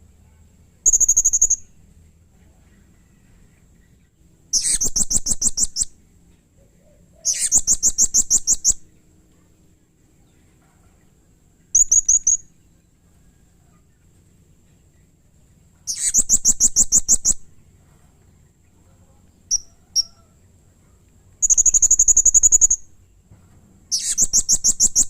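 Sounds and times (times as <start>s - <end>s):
parrot high-pitched chirps: 0.8s - 1.8s, 4.5s - 6.0s, 7.2s - 8.8s, 11.7s - 12.5s, 15.9s - 17.4s, 19.5s - 20.4s, 21.4s - 22.9s, 23.9s - 25.0s.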